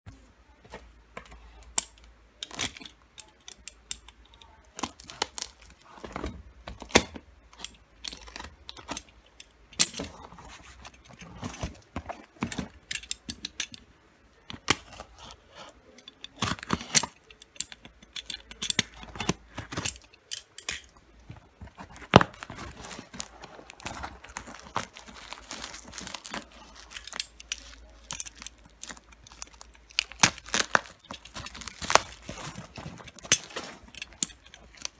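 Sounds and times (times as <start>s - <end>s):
plastic and paper crinkling: 15.7s - 34.9s.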